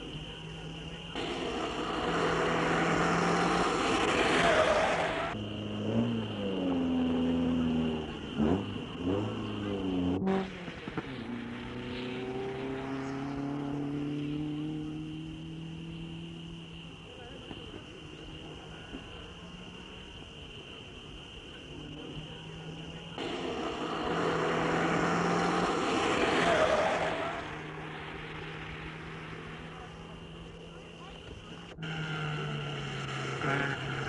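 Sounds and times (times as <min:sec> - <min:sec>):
car accelerating away: 0:00.0 - 0:34.0
rally car engines revving: 0:00.0 - 0:34.0
loud rushing noise: 0:01.2 - 0:05.4, 0:23.2 - 0:30.0.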